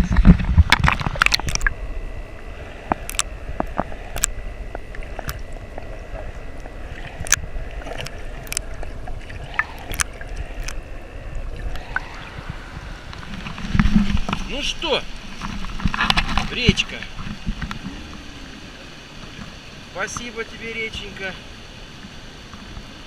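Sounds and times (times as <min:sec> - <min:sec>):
river water running: 0:00.0 - 0:23.0
sharp clicks and knocks: 0:03.0 - 0:04.3, 0:07.2 - 0:08.7.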